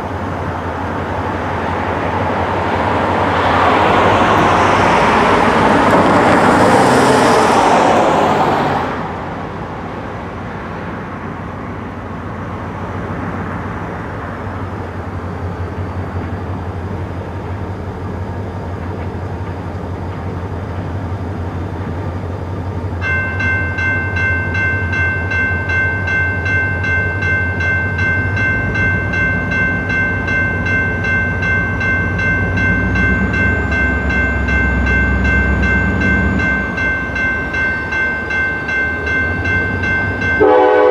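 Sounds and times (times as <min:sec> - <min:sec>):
diesel locomotive rumbling: 0:00.0 - 0:40.9
road vehicle passing: 0:00.2 - 0:16.1
railroad crossing bell ringing: 0:22.3 - 0:40.9.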